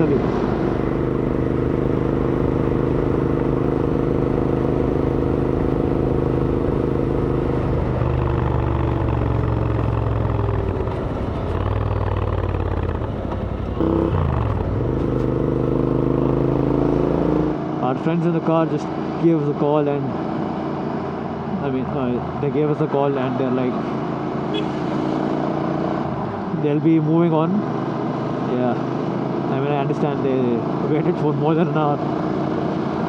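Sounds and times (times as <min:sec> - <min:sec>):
motorcycle engine cruising: 0:00.0 - 0:17.9.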